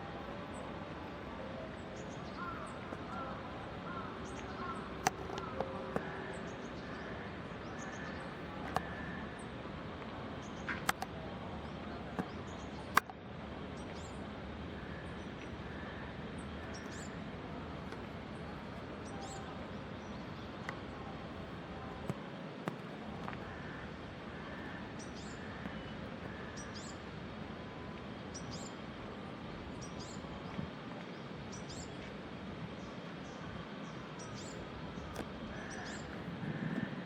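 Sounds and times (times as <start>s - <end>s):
steady outdoor hiss: 0.0s - 37.0s
faint high bird calls: 1.4s - 9.5s.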